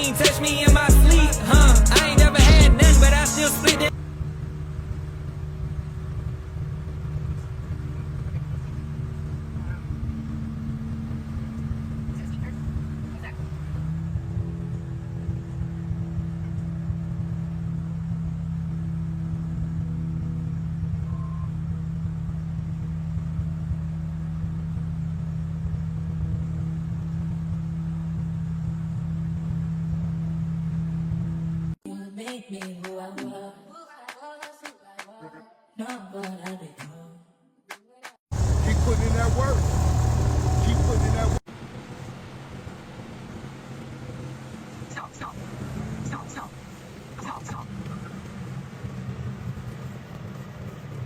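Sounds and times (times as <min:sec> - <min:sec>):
vehicle engine droning: 0:00.0 - 0:21.0, 0:38.3 - 0:44.8.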